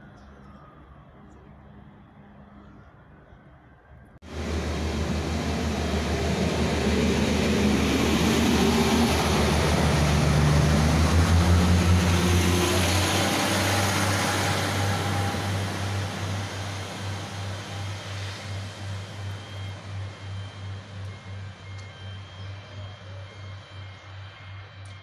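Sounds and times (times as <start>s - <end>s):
train engine drone: 0.0s - 25.0s
train rushing on rails: 4.2s - 21.6s.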